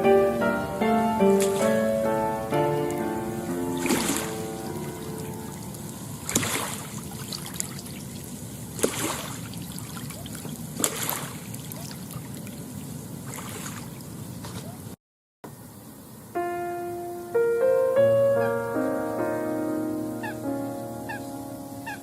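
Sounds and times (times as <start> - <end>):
water splash: 1.3 - 2.0, 3.7 - 14.7
small waves lapping at shore: 1.4 - 2.0, 3.7 - 14.8.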